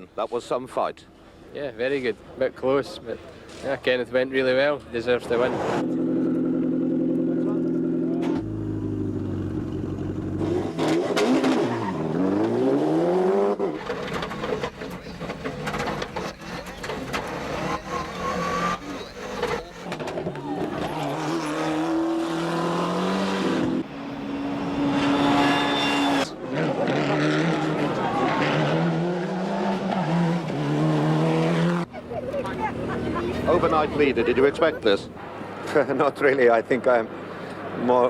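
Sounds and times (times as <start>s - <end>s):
rally car engine revving: 5.4s - 31.9s.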